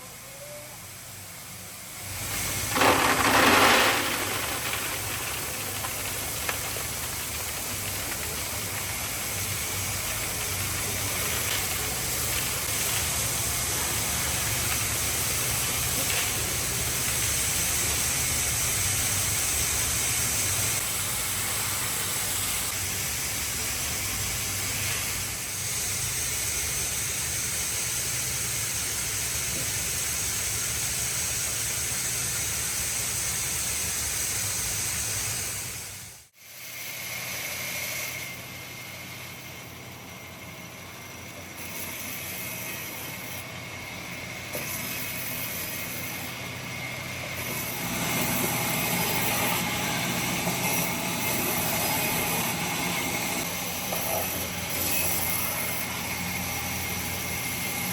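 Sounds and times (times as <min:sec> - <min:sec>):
woodworking machine hiss and hum: 0:00.0 - 0:57.9.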